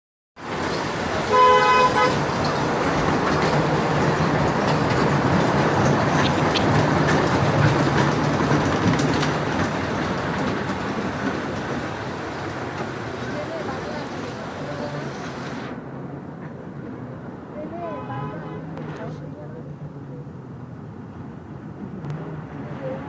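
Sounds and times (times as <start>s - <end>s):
train running rumble: 0.4s - 17.6s
train horn toot: 1.2s - 2.5s, 17.9s - 18.8s.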